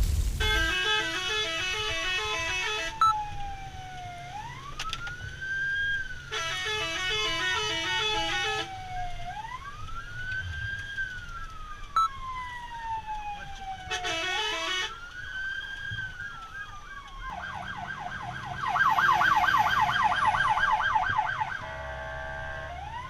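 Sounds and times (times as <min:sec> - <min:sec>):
fire engine siren wailing: 0:00.4 - 0:23.0
rapidly pulsing siren tone: 0:15.5 - 0:23.0.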